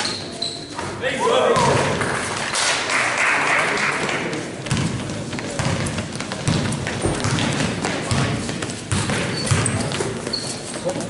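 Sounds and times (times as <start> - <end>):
murmur of voices: 0.0 - 11.0
basketball bouncing: 4.6 - 10.4.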